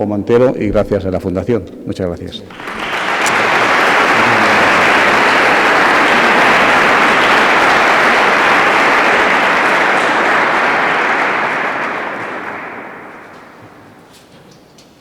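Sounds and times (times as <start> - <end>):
audience applauding: 2.5 - 14.3.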